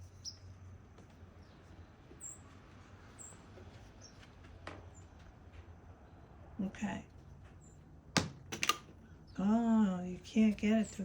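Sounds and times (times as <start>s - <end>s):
small birds chirping: 0.0s - 5.2s, 9.0s - 11.0s.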